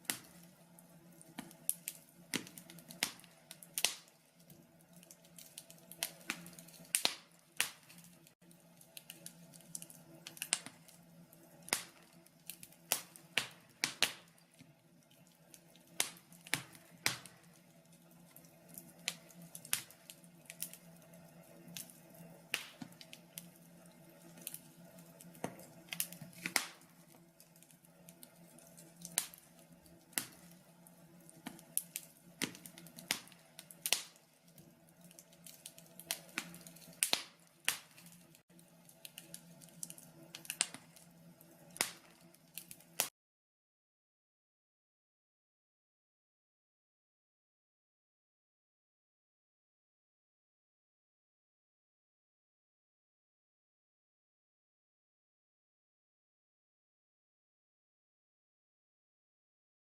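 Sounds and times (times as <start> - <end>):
faint steady hum: 0.0 - 43.0
wood fire crackling: 0.0 - 43.1.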